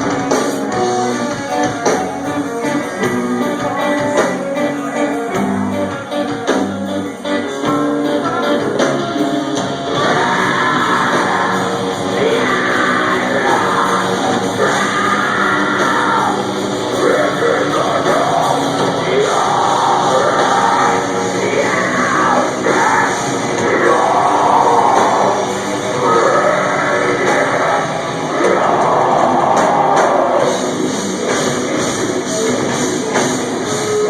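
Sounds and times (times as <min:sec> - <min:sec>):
distorted guitars: 0:00.0 - 0:34.0
drums: 0:00.0 - 0:34.0
screamed vocals: 0:09.9 - 0:30.7.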